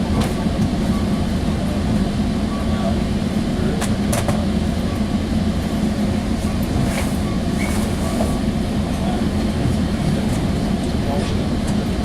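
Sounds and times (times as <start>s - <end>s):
train rumble and hum: 0.0s - 12.0s.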